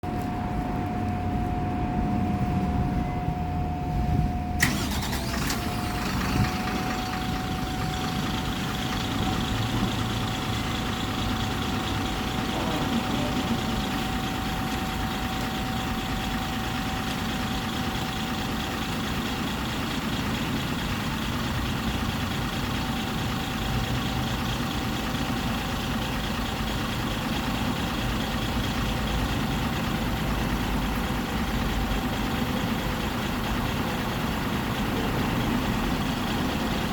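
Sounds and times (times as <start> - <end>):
diesel engine starting and idling: 0.0 - 36.9.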